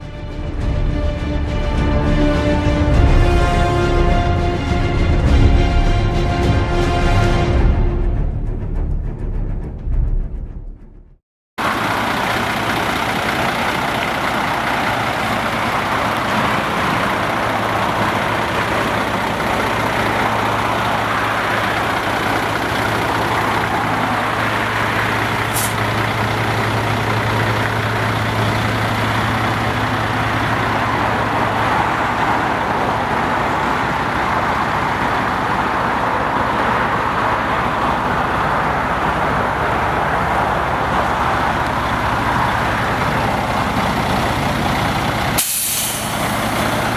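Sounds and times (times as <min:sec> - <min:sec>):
diesel truck engine running: 0:11.6 - 0:46.9.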